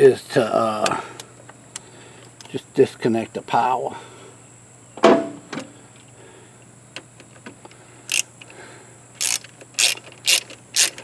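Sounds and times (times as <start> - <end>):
socket ratchet clicking: 8.1 - 8.3, 9.2 - 11.0.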